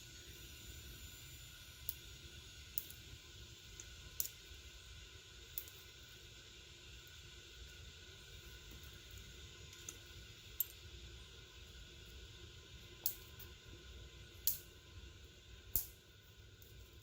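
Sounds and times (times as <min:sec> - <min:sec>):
fire crackling pops: 0:15.7 - 0:16.0.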